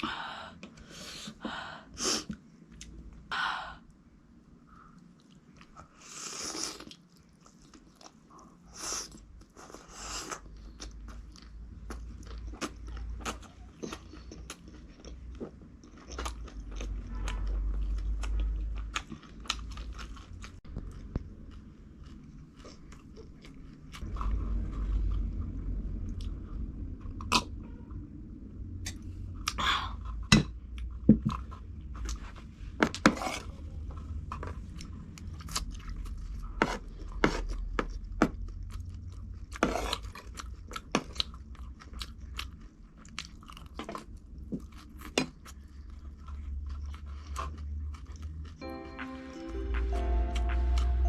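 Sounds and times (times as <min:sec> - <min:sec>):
chewing with wet mouth clicks: 0:10.3 - 0:27.6, 0:34.3 - 0:48.6.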